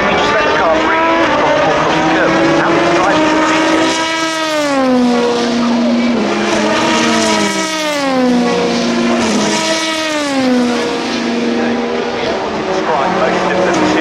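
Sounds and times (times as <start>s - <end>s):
race cars passing: 0.0s - 14.0s.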